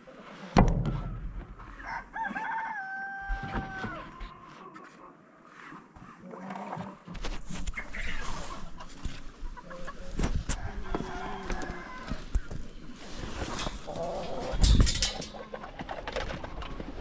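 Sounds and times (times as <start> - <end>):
chickens clucking: 7.5 - 17.0.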